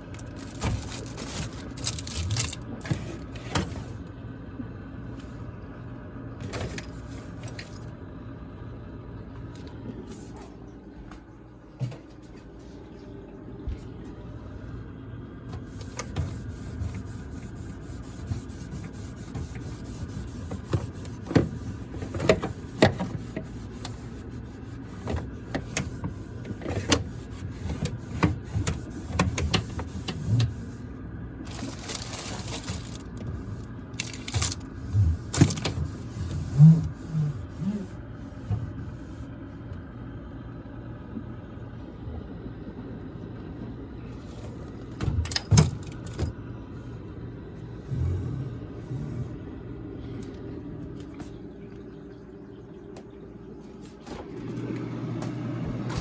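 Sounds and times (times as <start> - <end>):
steady low hum: 0.0 - 56.0
items clattering on shelves: 0.1 - 4.0, 31.5 - 37.8.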